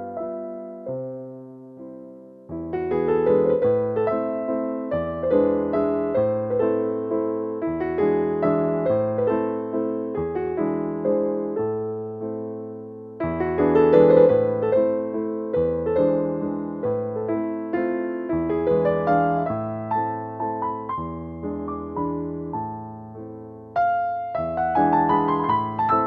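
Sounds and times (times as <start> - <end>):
gentle piano melody: 0.0 - 26.0.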